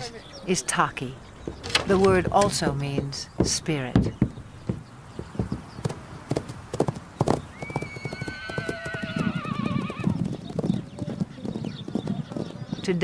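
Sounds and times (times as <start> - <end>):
hooves clip-clopping: 0.3 - 13.0
horse whinnying: 7.5 - 10.2.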